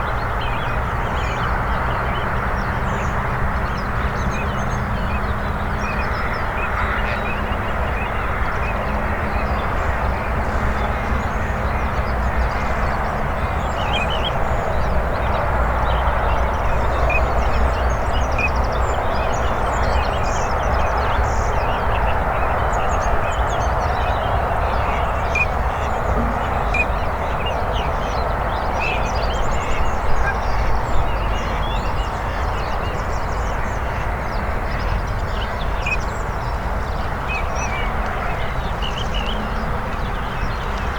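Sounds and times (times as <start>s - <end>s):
ducks and geese calling: 23.2s - 32.8s
low rumble: 24.8s - 28.3s.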